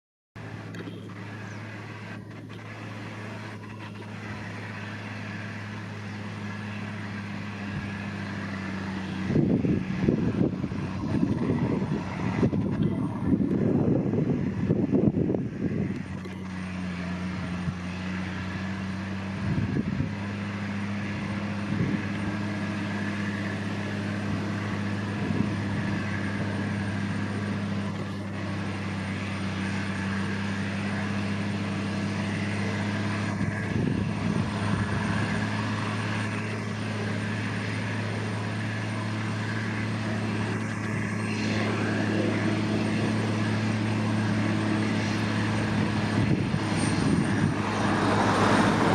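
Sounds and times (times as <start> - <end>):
tractor diesel engine droning: 0.4 - 48.9
wind buffeting microphone: 7.0 - 29.0, 29.6 - 36.7, 40.2 - 48.9.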